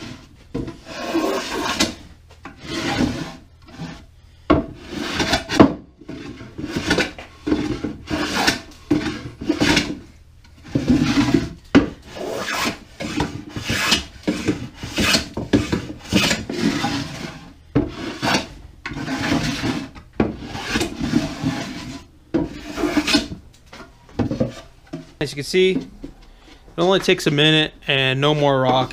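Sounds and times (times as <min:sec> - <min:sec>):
hand plane shaving wood: 0:00.0 - 0:02.0, 0:02.6 - 0:04.0, 0:04.8 - 0:10.0, 0:10.7 - 0:23.4.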